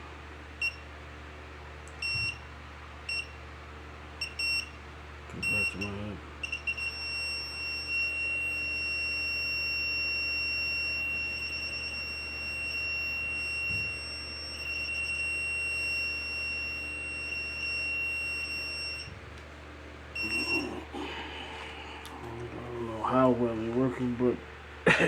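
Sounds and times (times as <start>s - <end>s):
high-pitched warbling alarm tone: 20.2s - 20.8s.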